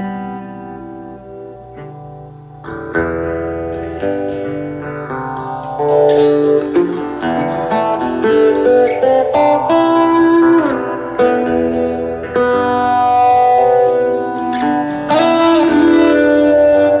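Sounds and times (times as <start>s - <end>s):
plucked guitar notes: 0.0s - 17.0s.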